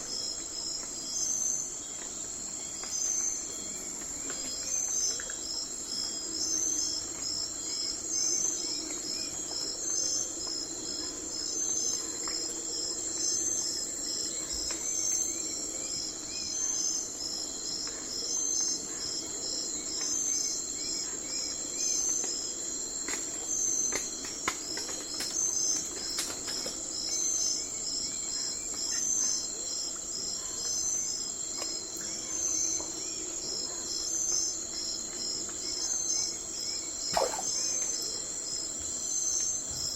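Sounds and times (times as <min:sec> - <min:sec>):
crickets trilling: 0:00.0 - 0:39.9
faint bird calls: 0:37.1 - 0:38.1.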